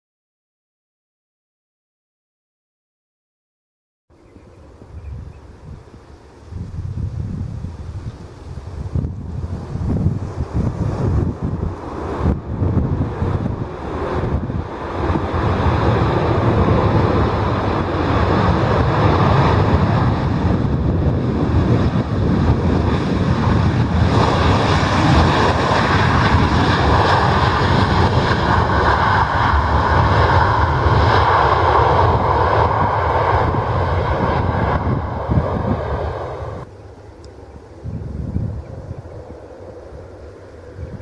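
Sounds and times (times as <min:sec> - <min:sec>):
jet engines roaring: 0:08.3 - 0:41.0.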